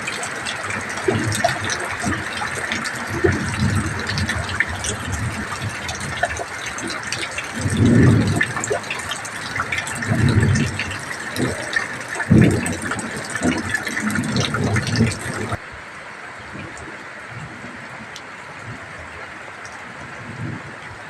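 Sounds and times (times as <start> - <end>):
low rumbling wind gusts: 0.0 - 15.6, 16.4 - 21.0
heavy rain falling: 0.0 - 21.0.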